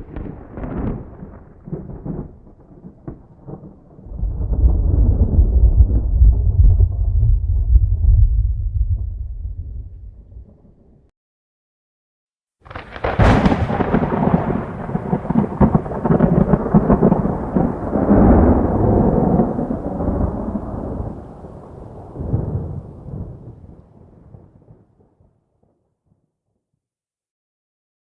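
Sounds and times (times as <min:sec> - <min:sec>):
lightning crack: 0:00.0 - 0:10.9, 0:12.7 - 0:24.8
thunder rolling rumble: 0:00.0 - 0:11.1, 0:12.7 - 0:24.8.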